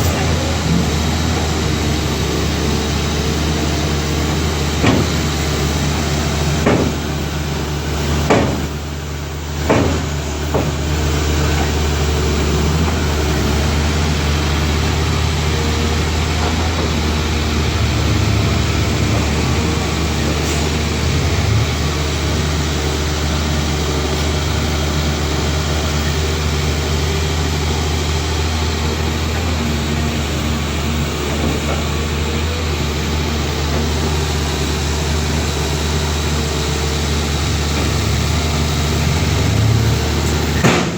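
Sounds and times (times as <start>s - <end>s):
diesel engine running at low revs: 0.0s - 40.9s
sharp knocks: 4.7s - 5.7s, 6.6s - 7.4s, 8.2s - 8.8s, 9.6s - 10.9s, 40.6s - 40.9s.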